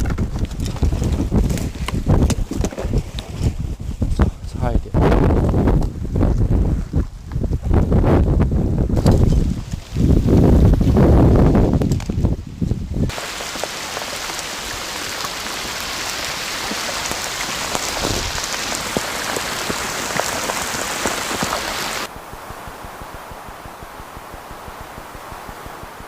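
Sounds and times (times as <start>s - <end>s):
heavy rain falling: 13.1s - 26.0s.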